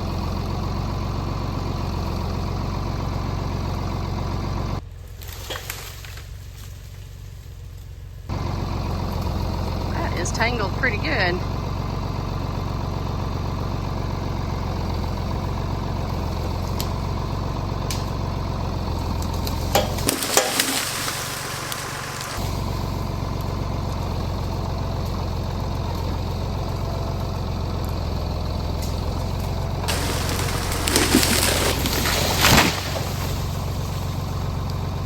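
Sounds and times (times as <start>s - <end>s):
tractor engine running: 0.0s - 35.0s
hiss-like noise: 20.2s - 22.5s, 29.9s - 33.2s.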